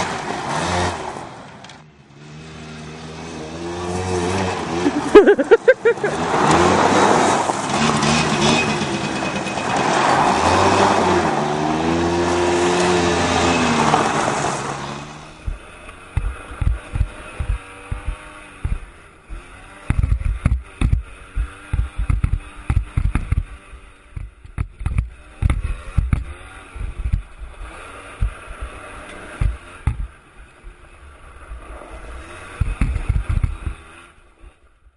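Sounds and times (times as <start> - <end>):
two-stroke engine revving: 0.0 - 1.5, 2.1 - 34.7
irregular low thumps: 15.4 - 18.9, 19.9 - 30.2.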